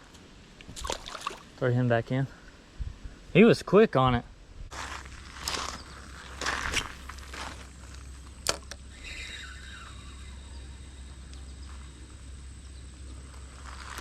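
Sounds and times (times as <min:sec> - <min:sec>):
low outdoor rumble: 0:00.0 - 0:14.0
short scuffs: 0:04.7 - 0:07.7
rustling movement: 0:04.7 - 0:08.4, 0:11.6 - 0:14.0.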